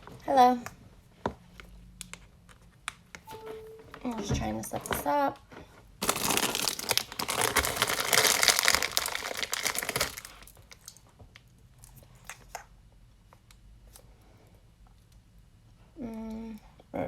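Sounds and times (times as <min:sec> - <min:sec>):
crinkling and rustling: 0:04.0 - 0:11.1.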